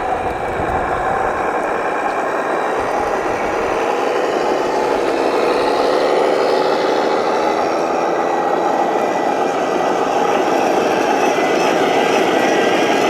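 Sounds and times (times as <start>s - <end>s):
model vehicle mechanical hum: 0.0s - 13.0s.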